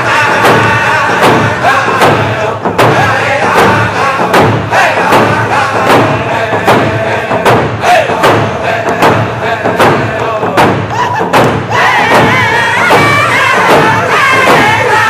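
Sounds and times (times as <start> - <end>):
group of singers singing: 0.0 - 15.0
hand drums beating: 0.0 - 15.0.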